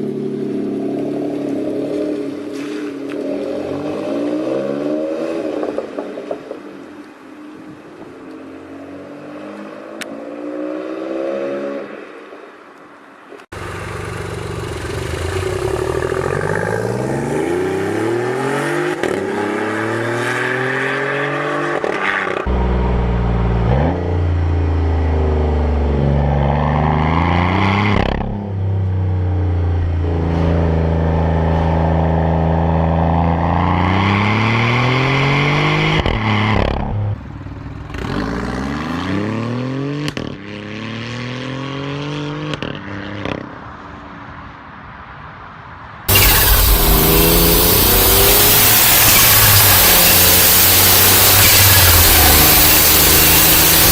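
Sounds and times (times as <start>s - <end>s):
car engine accelerating: 13.6s - 27.9s, 46.1s - 53.9s.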